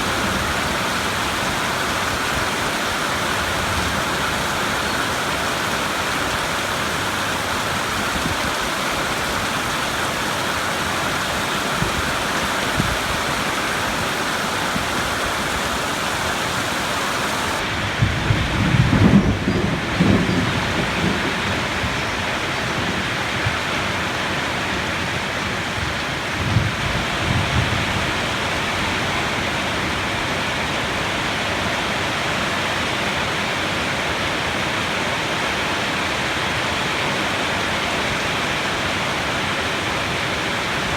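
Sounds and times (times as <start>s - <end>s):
steady rain falling: 0.0s - 40.9s
low rumble of thunder: 16.8s - 23.1s.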